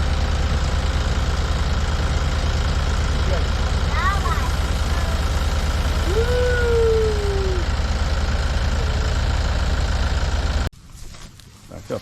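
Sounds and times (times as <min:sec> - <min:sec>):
tractor engine idling: 0:00.0 - 0:10.8
rising and falling tone: 0:05.2 - 0:07.8.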